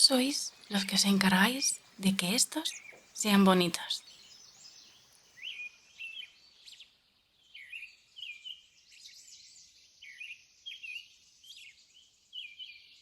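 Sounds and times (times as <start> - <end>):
birds chirping: 0.0 - 6.3
faint steady high hiss: 0.0 - 12.4.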